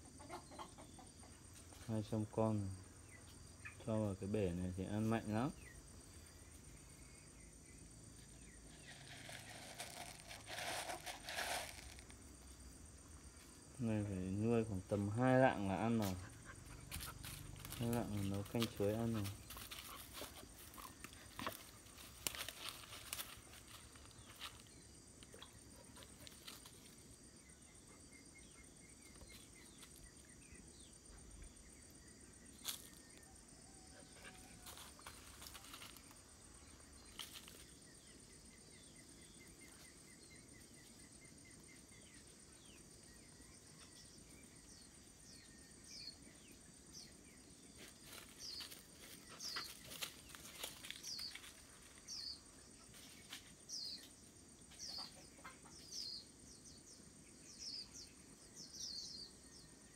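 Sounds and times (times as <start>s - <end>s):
small bird chirping: 35.0s - 59.9s.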